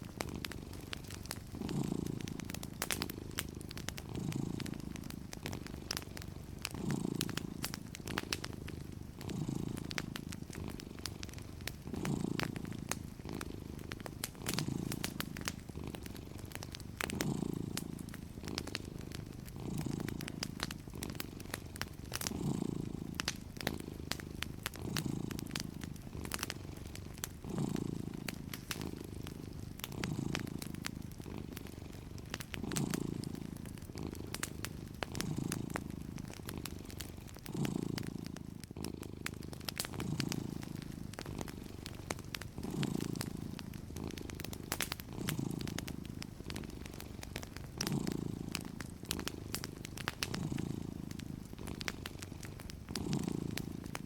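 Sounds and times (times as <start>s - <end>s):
cat purring: 0.0s - 54.0s
fireplace crackling and popping: 0.0s - 54.0s.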